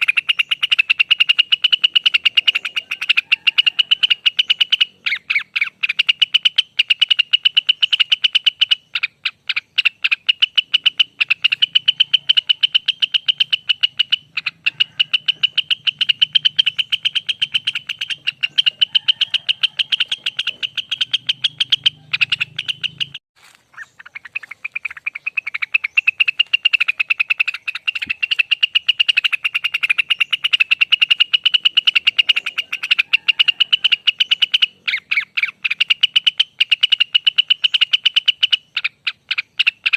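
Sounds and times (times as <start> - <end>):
bird singing rapid trill: 0.0 - 39.9.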